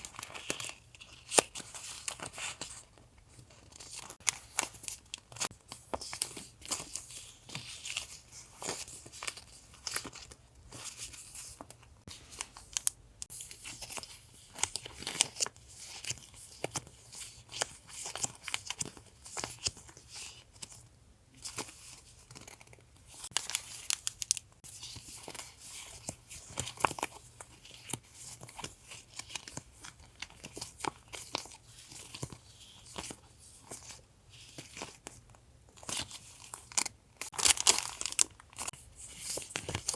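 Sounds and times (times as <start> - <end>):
packaging crinkling and tearing: 35.8 - 39.9.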